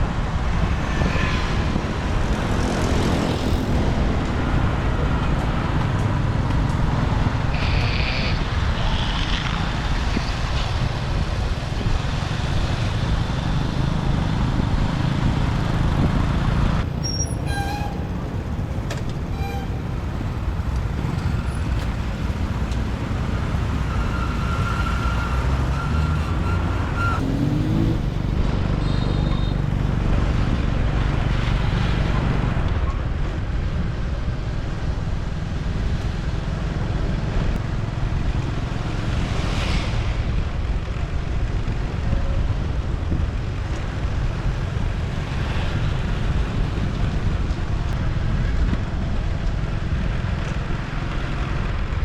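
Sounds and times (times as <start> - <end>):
traffic rumble and road noise: 0.0 - 52.0
short tones from vehicles: 17.0 - 22.4.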